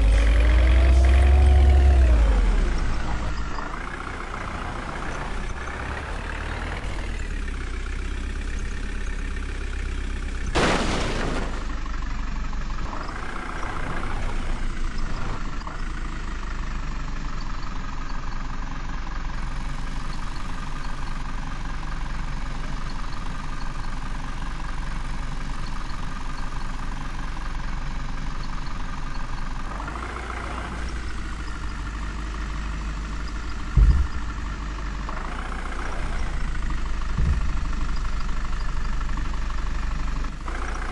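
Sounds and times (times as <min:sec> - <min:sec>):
engine idling: 0:00.0 - 0:40.9.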